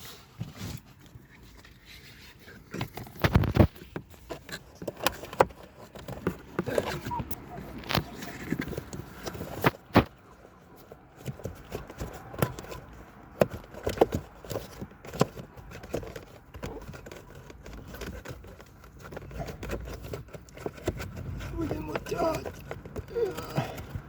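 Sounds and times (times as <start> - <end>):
rustling: 0.0 - 24.0
plastic clicks and knocks: 11.2 - 24.0.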